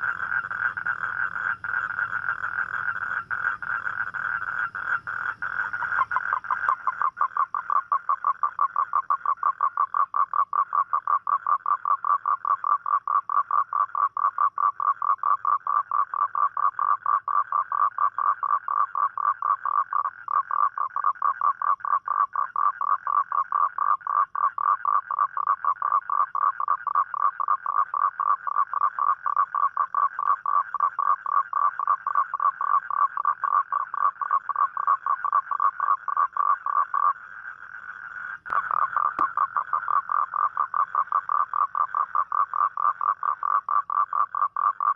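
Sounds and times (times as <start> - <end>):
toad trilling: 0.0 - 44.9.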